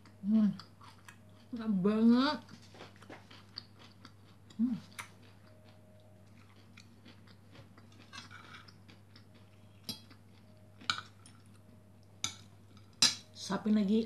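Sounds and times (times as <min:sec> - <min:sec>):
chewing crunchy fried rice: 0:00.0 - 0:01.6, 0:02.4 - 0:11.7.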